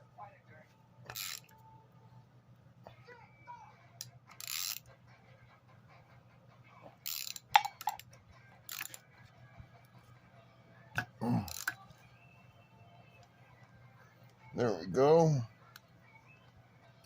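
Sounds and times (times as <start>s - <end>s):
low steady hum: 0.0s - 17.0s
wrench metallic scrapes and clicks: 1.1s - 1.6s, 4.4s - 4.9s, 7.0s - 7.5s, 8.7s - 9.0s.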